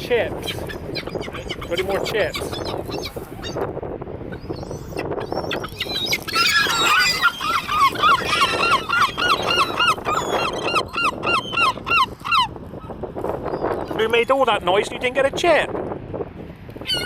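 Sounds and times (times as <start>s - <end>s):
gulls calling noisily: 0.0s - 14.5s, 16.8s - 17.0s
gull repeated calls: 5.6s - 12.5s.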